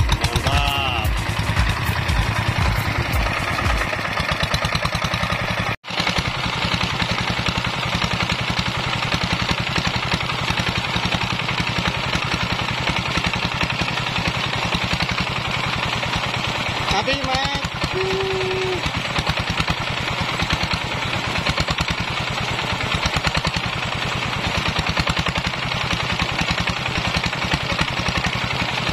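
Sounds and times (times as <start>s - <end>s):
diesel engine clattering: 0.0s - 28.9s.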